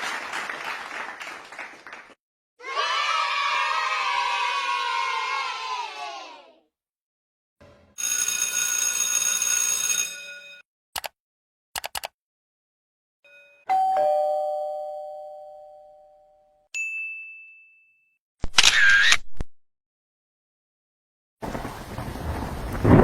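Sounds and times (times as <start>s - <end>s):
sharp clicks: 11.0s - 11.2s, 11.8s - 12.1s
two-note doorbell ding-dong: 13.3s - 18.1s.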